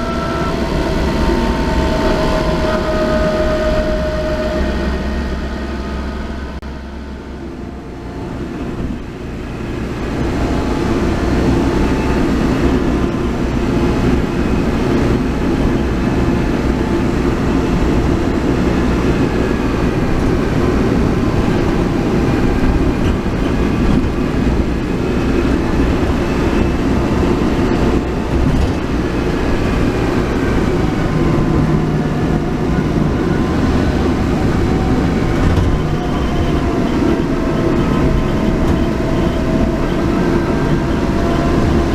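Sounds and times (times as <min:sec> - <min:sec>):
car road and engine rumble: 0:00.0 - 0:41.9
transmission whine: 0:00.0 - 0:41.9.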